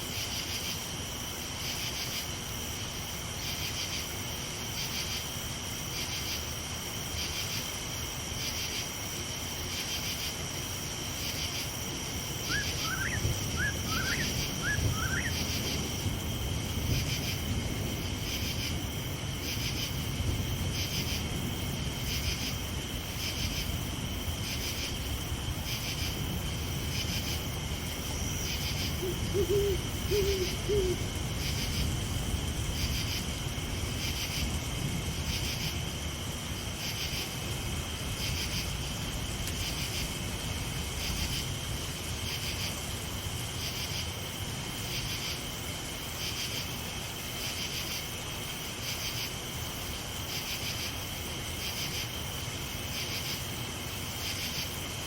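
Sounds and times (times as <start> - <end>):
crickets trilling: 0.0 - 55.0
quick rising chirps: 12.5 - 15.4.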